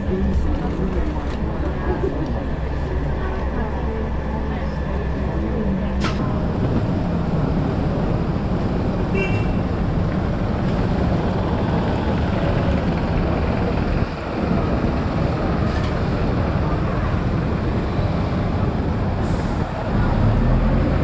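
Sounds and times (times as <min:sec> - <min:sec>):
low vehicle rumble: 0:00.0 - 0:21.0.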